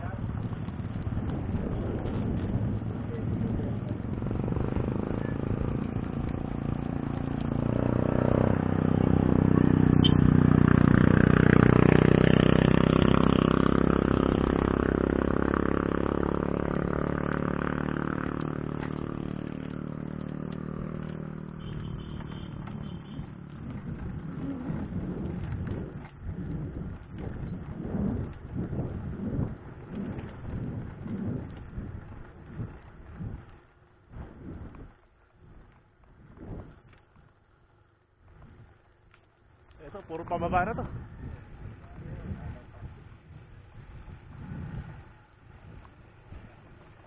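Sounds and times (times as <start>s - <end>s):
vehicle engine passing by: 0.0s - 31.9s, 43.9s - 47.0s.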